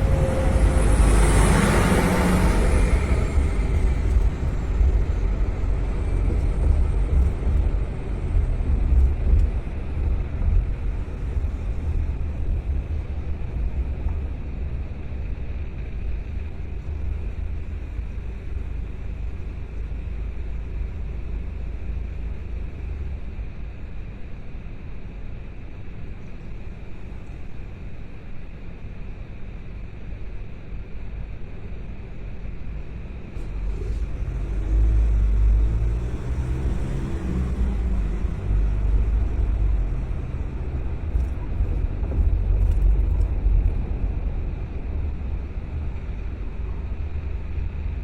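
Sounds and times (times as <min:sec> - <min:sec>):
car road and engine rumble: 0:00.0 - 0:48.0.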